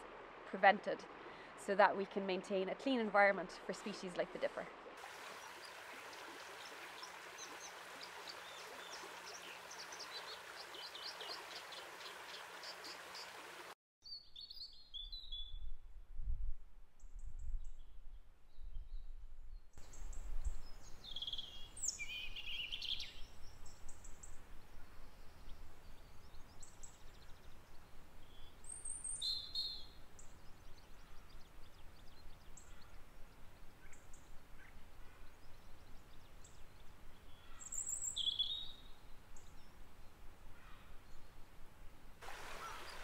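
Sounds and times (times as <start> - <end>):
river water rushing: 4.7 - 13.8, 42.2 - 43.0
bird chirping: 14.0 - 15.7, 19.8 - 24.3, 25.0 - 33.0, 33.8 - 39.7.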